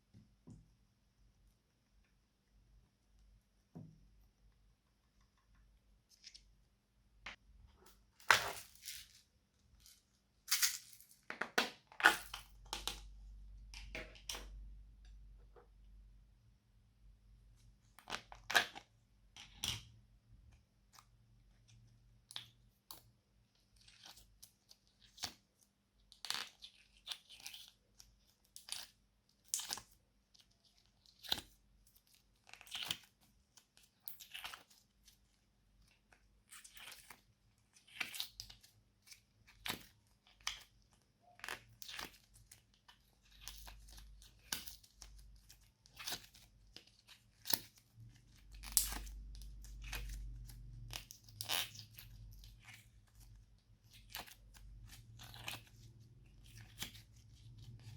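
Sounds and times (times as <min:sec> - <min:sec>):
slime squelching: 0:26.2 - 0:57.9.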